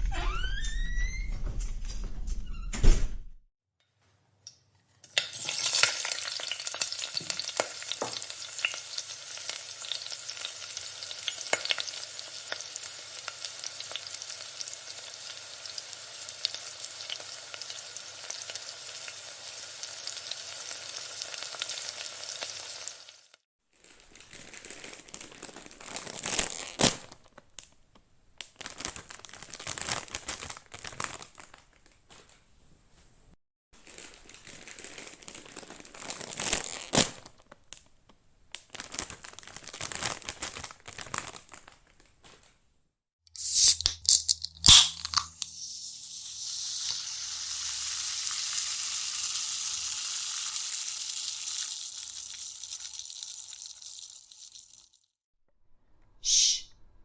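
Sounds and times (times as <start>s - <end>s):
food sizzling in a frying pan: 5.1s - 23.4s, 43.4s - 43.8s, 45.2s - 55.0s
rustling crackle with clicks: 23.8s - 27.8s, 28.4s - 32.4s, 33.8s - 37.9s, 38.5s - 42.6s.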